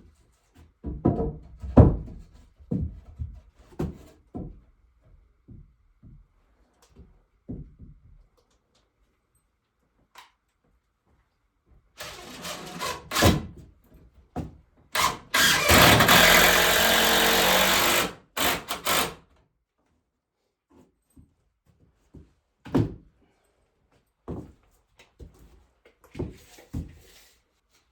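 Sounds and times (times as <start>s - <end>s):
power tool cutting wood: 12.0s - 13.5s, 15.0s - 19.2s.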